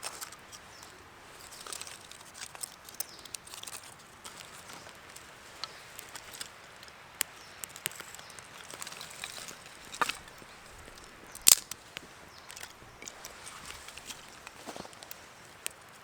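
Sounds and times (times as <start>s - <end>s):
sharp crack: 7.1s - 15.8s.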